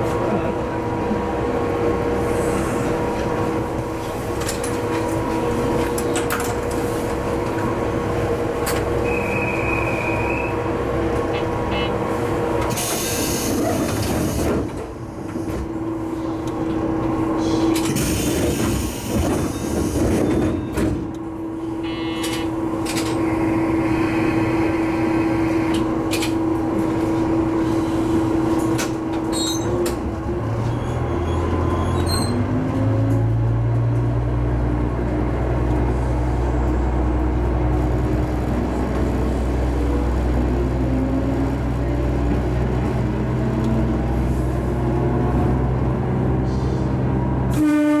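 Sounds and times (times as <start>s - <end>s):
diesel railcar engine: 0.0s - 48.0s
air hisses from doors: 12.7s - 14.5s.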